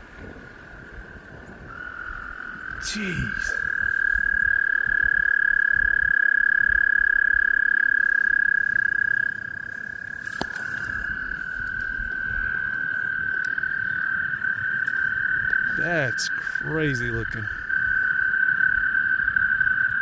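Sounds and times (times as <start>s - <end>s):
lower toad trill: 1.6s - 20.0s
high-pitched toad trill: 1.7s - 10.2s.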